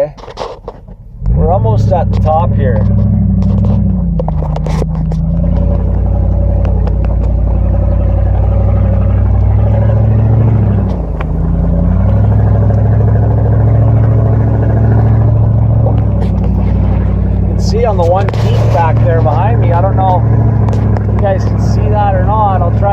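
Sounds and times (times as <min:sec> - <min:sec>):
pickup truck engine climbing: 0:00.0 - 0:22.9
clicks and rattles: 0:02.0 - 0:07.8, 0:15.8 - 0:21.6.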